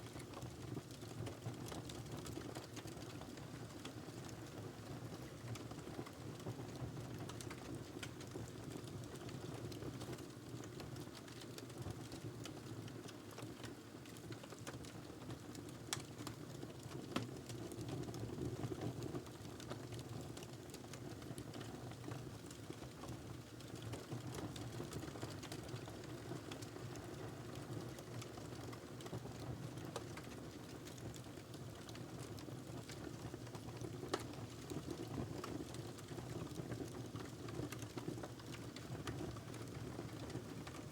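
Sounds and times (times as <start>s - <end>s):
wood fire crackling: 25.0s - 27.2s, 32.8s - 40.8s.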